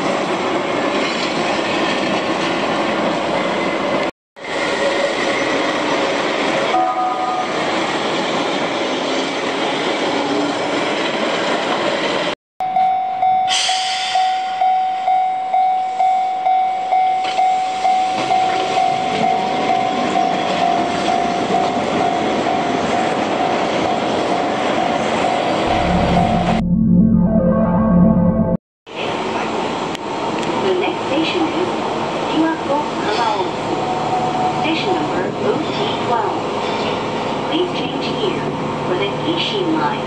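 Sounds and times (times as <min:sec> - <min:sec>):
level-crossing bell ringing: 0:14.2 - 0:22.2
train running through: 0:15.9 - 0:40.0.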